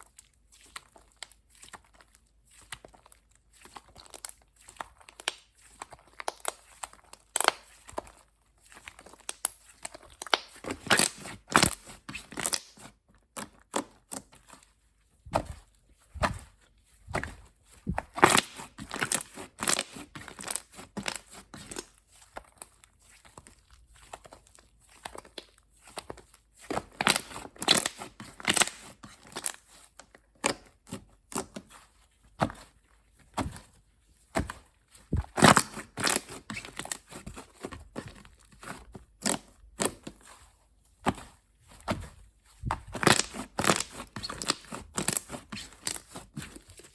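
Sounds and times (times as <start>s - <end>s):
slime crackling and popping: 42.7s - 46.2s.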